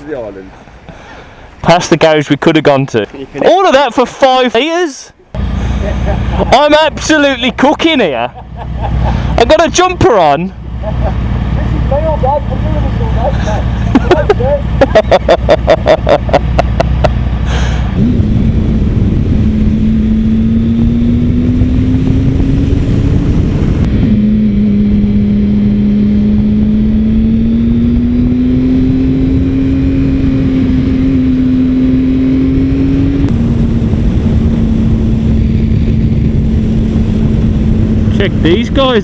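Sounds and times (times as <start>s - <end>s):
wind rumble on microphone: 11.8s - 39.0s.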